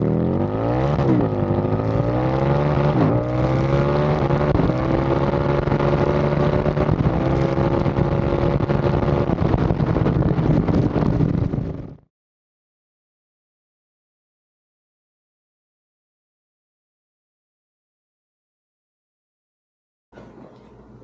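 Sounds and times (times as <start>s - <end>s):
motorcycle engine accelerating: 0.0s - 12.1s.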